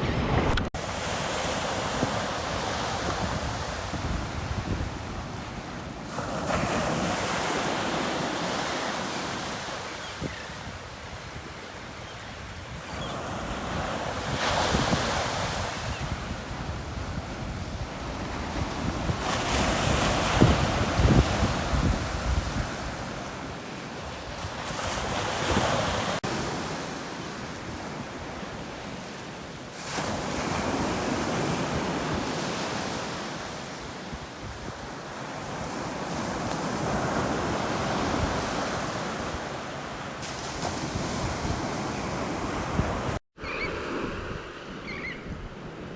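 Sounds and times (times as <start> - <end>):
wind buffeting microphone: 0.0 - 7.2, 10.0 - 23.5
waves breaking on beach: 0.0 - 44.8.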